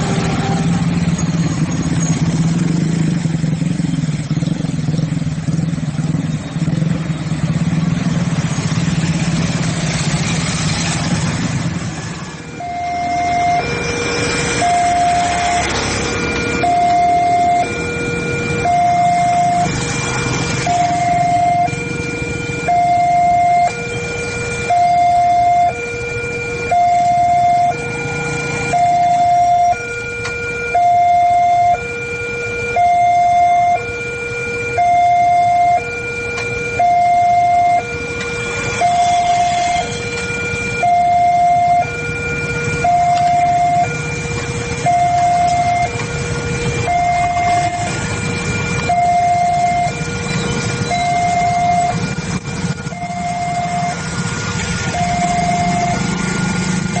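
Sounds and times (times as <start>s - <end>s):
level crossing alarm two tones: 12.5s - 57.0s.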